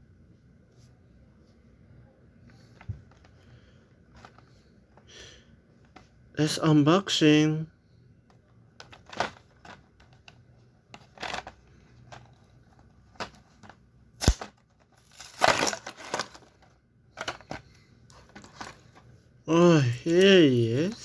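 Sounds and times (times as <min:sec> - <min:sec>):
cardboard and plastic crackling: 0:08.8 - 0:21.0
packaging rustle: 0:13.1 - 0:19.0
packaging snap: 0:14.2 - 0:16.4.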